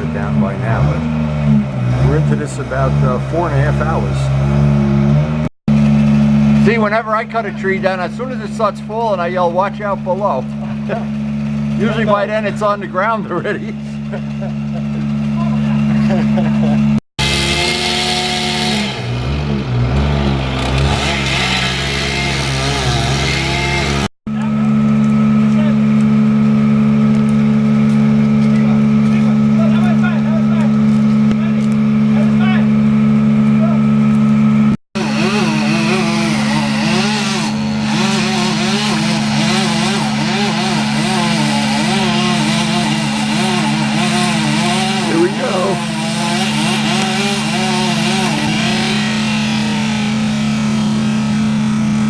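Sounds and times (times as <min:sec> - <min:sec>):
chainsaw cutting: 0:00.0 - 0:34.4, 0:35.0 - 0:52.0
engine running and revving: 0:00.0 - 0:52.0.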